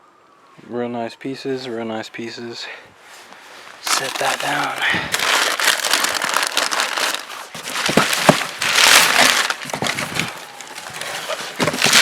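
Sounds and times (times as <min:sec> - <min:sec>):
cardboard crinkling and rustling: 0:03.7 - 0:12.0.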